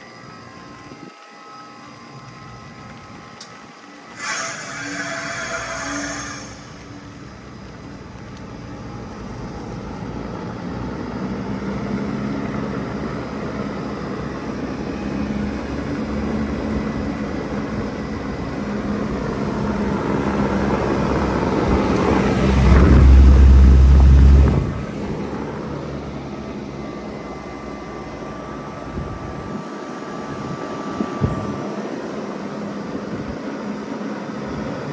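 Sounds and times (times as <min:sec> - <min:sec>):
faint high whine: 0:00.0 - 0:34.9
heat pump humming: 0:00.0 - 0:34.9
loud low whoosh: 0:21.0 - 0:25.6.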